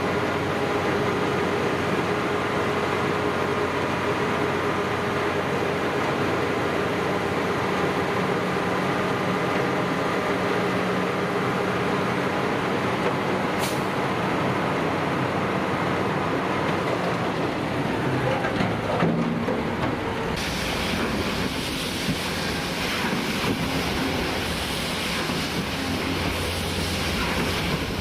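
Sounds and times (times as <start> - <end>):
heavy vehicle engine humming: 0.0 - 28.0
brief hiss: 13.6 - 14.0, 20.4 - 28.0.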